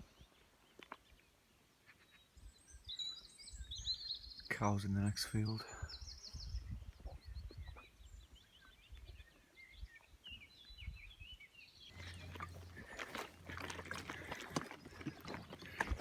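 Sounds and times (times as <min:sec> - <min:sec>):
small birds chirping: 0:00.0 - 0:16.0
crunching footsteps on path: 0:11.9 - 0:16.0
rustling: 0:11.9 - 0:16.0.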